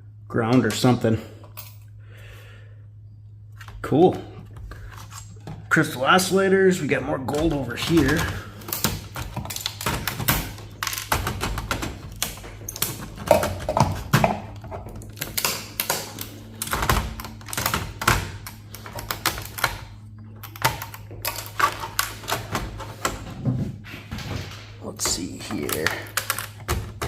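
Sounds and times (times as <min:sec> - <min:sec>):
steady low hum: 0:00.0 - 0:27.0
hand tools clicking and clattering: 0:07.3 - 0:23.4, 0:24.6 - 0:27.0.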